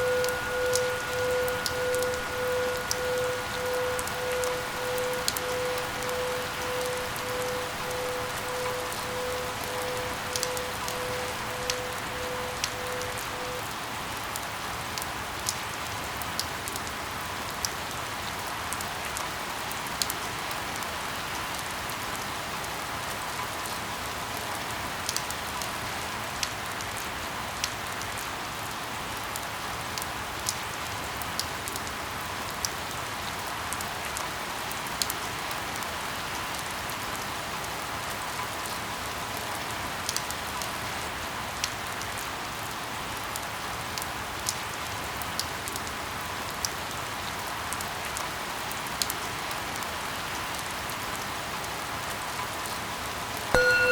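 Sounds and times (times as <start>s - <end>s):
water drops ticking: 0.0s - 13.6s, 53.6s - 53.9s
faint pulsing tone: 0.0s - 13.7s, 53.6s - 53.9s
steady rain hiss: 0.0s - 53.9s.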